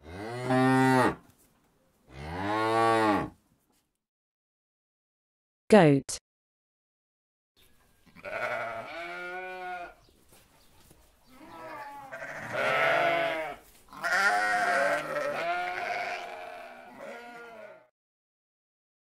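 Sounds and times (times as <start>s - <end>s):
goat bleating: 8.0s - 10.0s, 11.3s - 17.9s.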